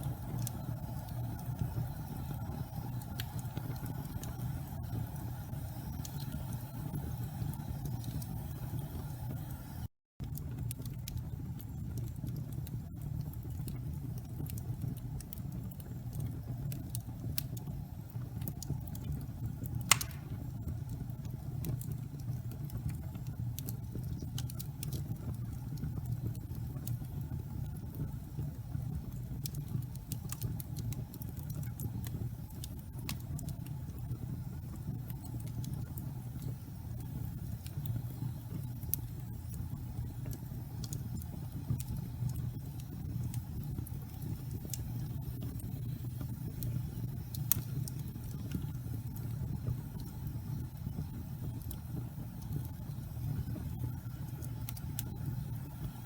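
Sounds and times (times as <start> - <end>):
fire crackling: 0.0 - 56.0
fireplace fire rumbling: 0.0 - 56.0
loud wood pop: 19.9 - 20.4.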